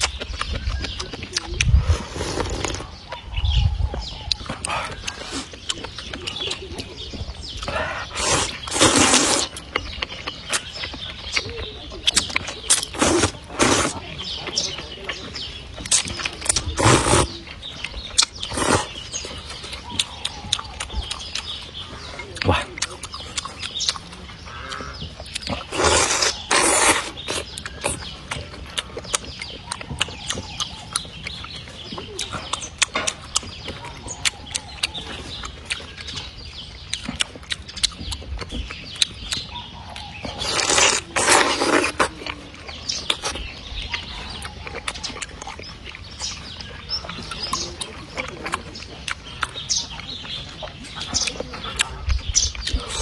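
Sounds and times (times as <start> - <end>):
wet chewing: 0.0 - 53.0
loud slurps: 1.8 - 2.9, 7.6 - 9.6, 12.7 - 14.0, 16.5 - 17.4, 18.4 - 19.0, 25.5 - 28.0, 40.4 - 42.2.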